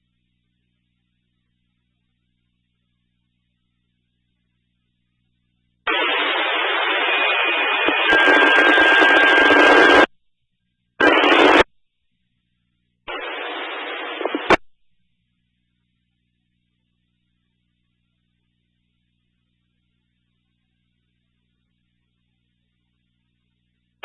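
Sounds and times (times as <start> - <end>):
radio static bursts: 5.9 - 10.1, 11.0 - 11.7, 13.1 - 14.6
radio click: 11.0 - 11.7, 13.1 - 14.6.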